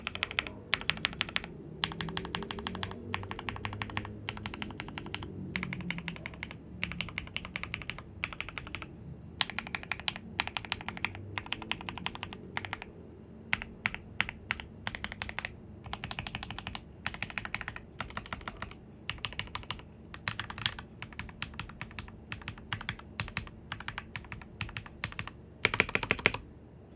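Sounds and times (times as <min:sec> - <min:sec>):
mechanical keyboard typing: 0:00.0 - 0:12.9, 0:13.5 - 0:26.4.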